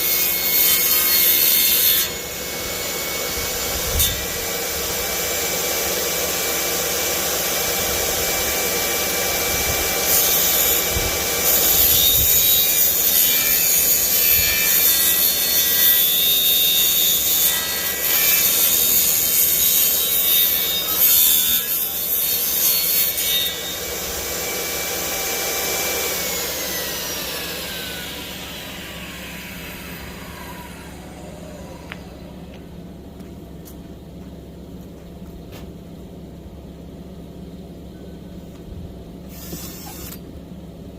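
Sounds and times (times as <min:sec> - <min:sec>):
power saw cutting wood: 0:00.0 - 0:32.6, 0:39.3 - 0:40.3
saw motor winding down: 0:02.0 - 0:32.7, 0:39.2 - 0:40.3.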